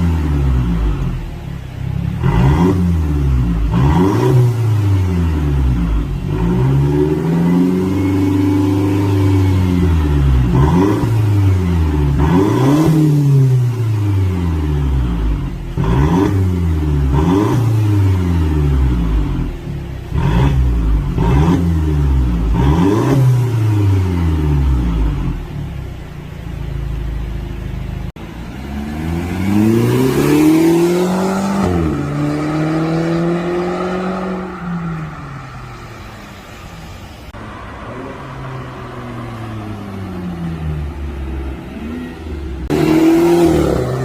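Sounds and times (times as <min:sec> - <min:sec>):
car engine revving loud exhaust: 0:00.0 - 0:27.2, 0:28.2 - 0:44.0.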